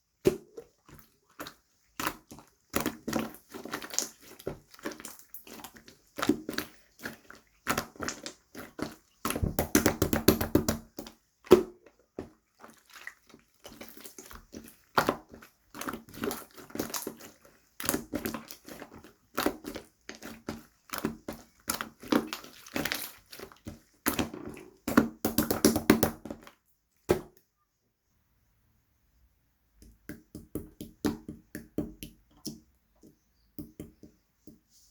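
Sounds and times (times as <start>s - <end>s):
slime squished by hand: 0.2s - 27.4s.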